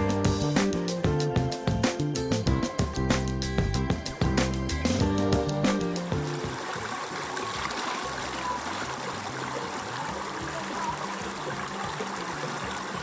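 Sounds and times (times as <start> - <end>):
quiet background music: 0.0 - 13.0
stream water running over rocks: 4.9 - 13.0.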